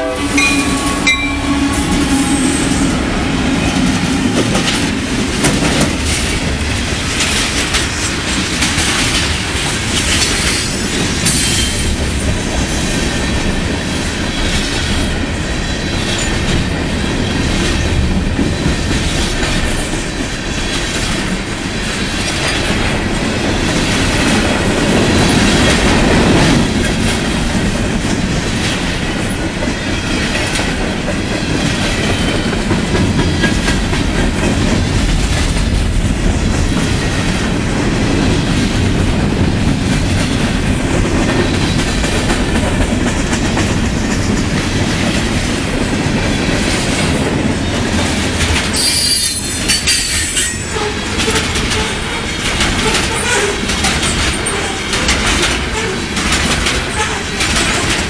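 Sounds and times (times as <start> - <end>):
freight cars rumbling: 0.0 - 29.4
wheels clicking over rail joints: 38.5 - 58.0.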